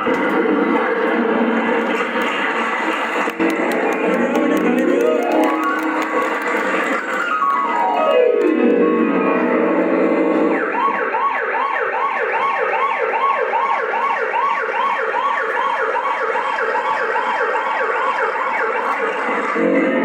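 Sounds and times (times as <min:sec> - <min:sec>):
fast yelping siren: 0:10.5 - 0:19.6.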